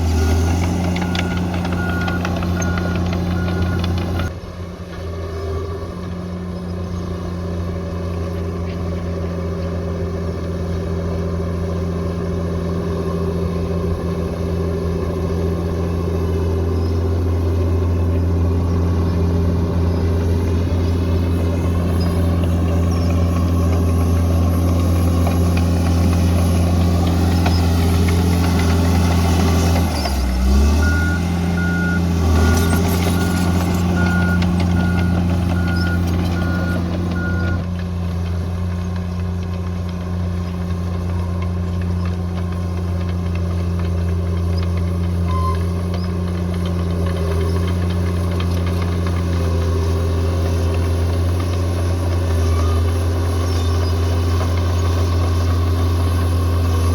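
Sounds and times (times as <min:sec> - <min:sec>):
reversing alarm beeping: 0:00.0 - 0:04.3, 0:29.9 - 0:37.6
diesel engine running: 0:00.0 - 0:56.9.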